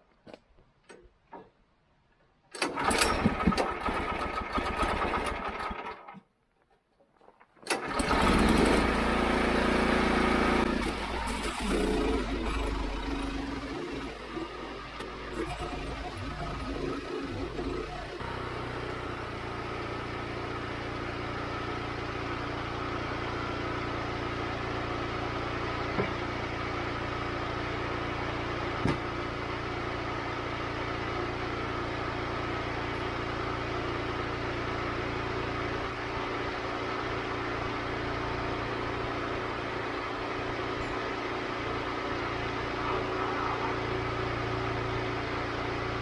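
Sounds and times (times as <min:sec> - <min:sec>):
band sawmill cutting log: 0:07.7 - 0:20.9.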